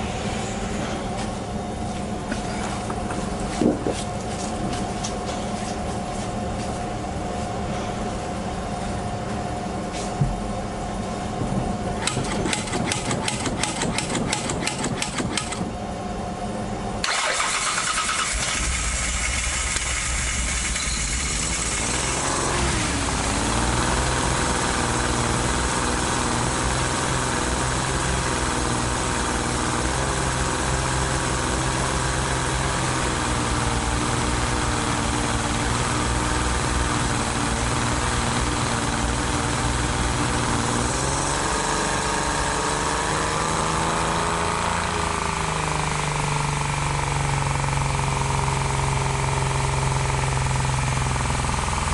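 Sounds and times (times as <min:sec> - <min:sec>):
car engine cranking and idling: 0:10.4 - 0:51.9.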